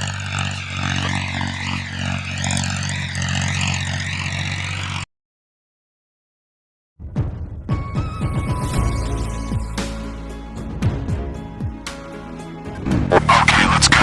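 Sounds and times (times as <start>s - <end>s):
vehicle engine drone: 0.0s - 5.1s, 8.5s - 14.0s
wavering high tone: 0.0s - 5.1s, 7.8s - 10.2s.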